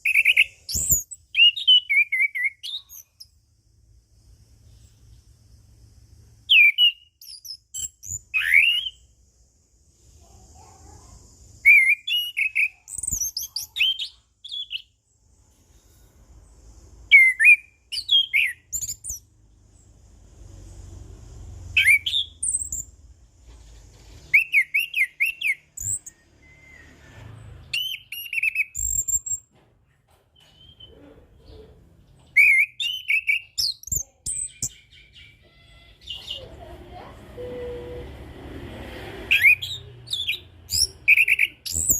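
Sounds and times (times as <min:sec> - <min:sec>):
thrush singing whistled notes: 0:00.0 - 0:03.4, 0:06.5 - 0:09.2, 0:11.6 - 0:15.0, 0:17.0 - 0:19.3, 0:21.7 - 0:23.0, 0:24.3 - 0:29.5, 0:32.3 - 0:35.4, 0:39.3 - 0:41.9.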